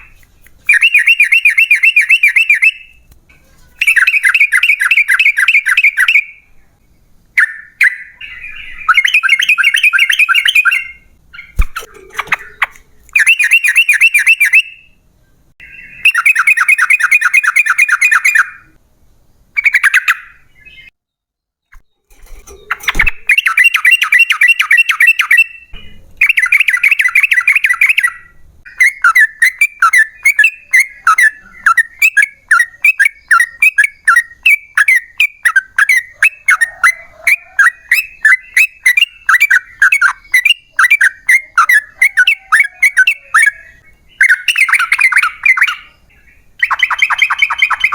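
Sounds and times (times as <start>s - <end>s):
bird chattering calls: 46.6s - 47.9s.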